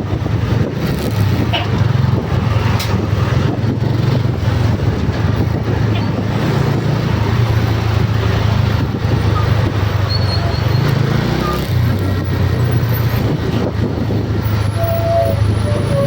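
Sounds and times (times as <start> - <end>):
motor vehicle engine rumble: 0.0 - 16.0
road noise: 0.0 - 16.0.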